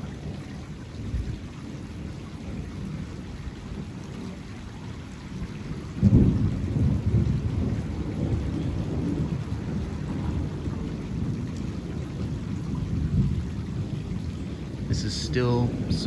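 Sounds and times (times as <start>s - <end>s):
thunder rumble and clap: 5.8s - 16.0s.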